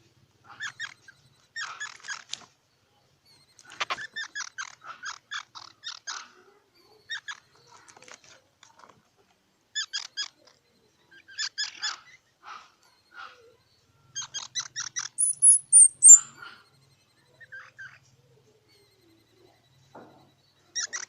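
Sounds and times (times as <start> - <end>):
squirrel calling: 0.5 - 2.3, 3.3 - 6.3, 9.8 - 18.1, 20.6 - 21.0.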